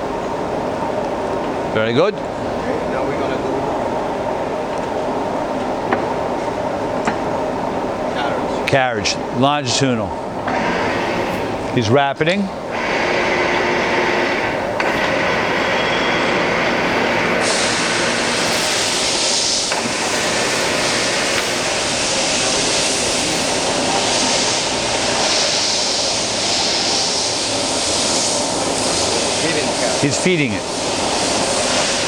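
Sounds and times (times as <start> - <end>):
lathe running: 10.2 - 26.0.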